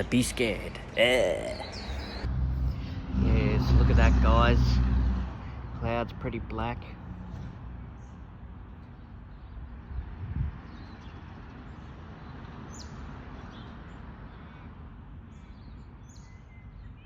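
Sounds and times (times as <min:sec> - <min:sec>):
birds chirping faintly: 0:00.0 - 0:04.8
wind rushing over microphone: 0:09.8 - 0:10.8.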